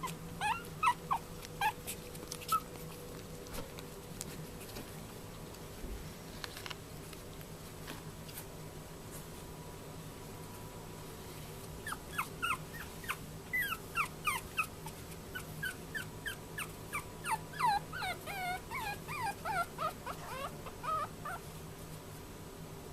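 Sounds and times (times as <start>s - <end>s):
puppy whimpering: 0.0s - 3.2s, 11.8s - 21.4s.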